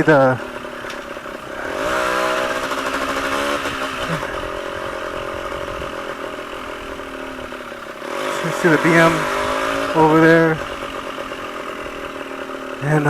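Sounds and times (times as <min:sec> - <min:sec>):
two-stroke motorcycle engine revving: 0:00.0 - 0:13.0.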